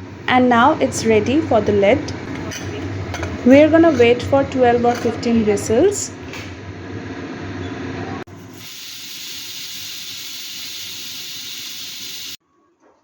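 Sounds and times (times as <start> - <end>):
pressure cooker venting steam: 8.3 - 12.4.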